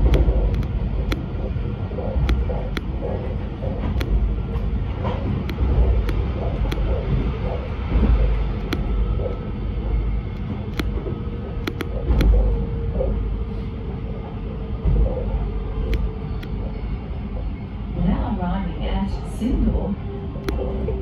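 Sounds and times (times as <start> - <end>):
sharp clicks: 0.0 - 1.3, 2.2 - 3.0, 5.4 - 7.2, 8.6 - 9.0, 10.4 - 11.0, 11.6 - 12.4, 20.4 - 20.8
train wheels rumbling on rail: 0.0 - 21.0.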